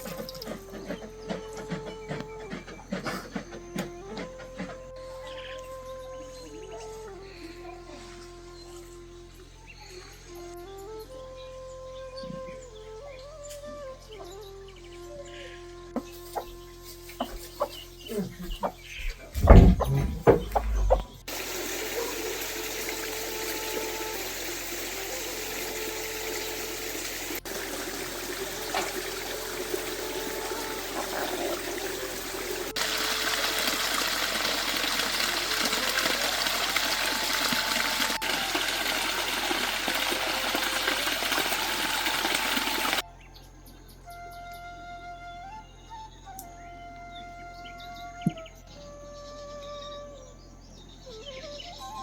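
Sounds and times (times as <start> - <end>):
rushing water: 0.0 - 2.1, 19.0 - 43.0
chickens clucking: 0.0 - 4.8, 17.2 - 21.4
loud thumps: 18.4 - 21.3.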